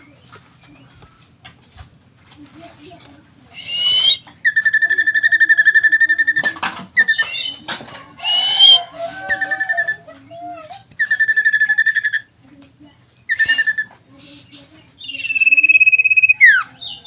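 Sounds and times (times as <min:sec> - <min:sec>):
bird whistled notes: 0:03.6 - 0:07.6, 0:11.0 - 0:12.3, 0:13.3 - 0:13.9, 0:15.1 - 0:16.7
bird whistled trills: 0:03.6 - 0:07.6, 0:08.2 - 0:10.1, 0:11.0 - 0:12.3, 0:13.3 - 0:14.0, 0:15.0 - 0:17.0.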